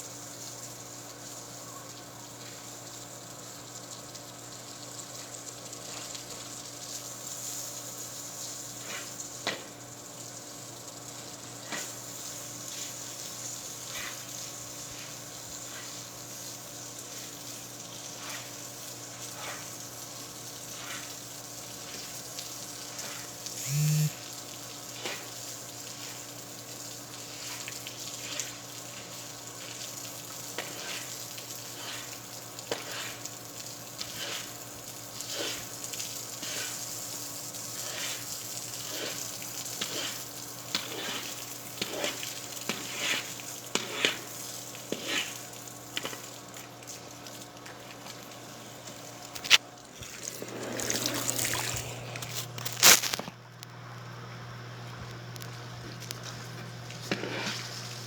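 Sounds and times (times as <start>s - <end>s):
food sizzling in a frying pan: 0.0s - 51.8s
crackles and scrapes: 36.4s - 53.8s, 54.9s - 58.0s.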